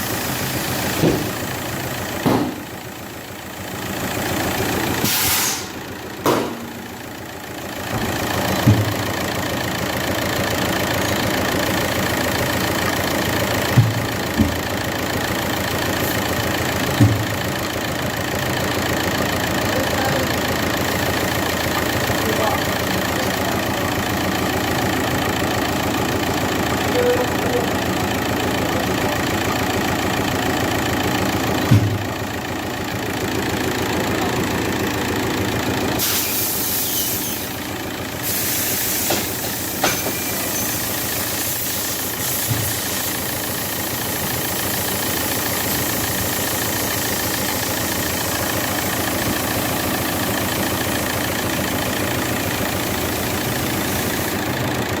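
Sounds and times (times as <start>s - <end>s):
diesel engine idling: 0.0s - 55.0s
engine knocks: 0.1s - 36.1s, 37.5s - 55.0s
hiss: 5.0s - 5.8s, 36.0s - 37.6s, 38.2s - 47.9s, 52.8s - 54.5s.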